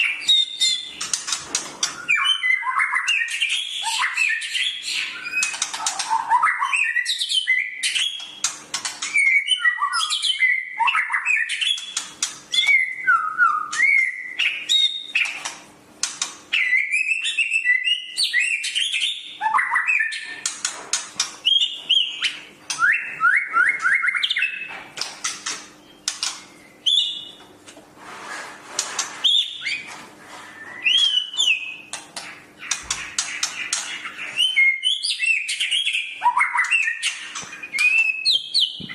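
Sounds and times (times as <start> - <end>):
songbird singing: 1.8 - 15.4, 16.5 - 20.5, 21.4 - 24.8, 29.3 - 38.9.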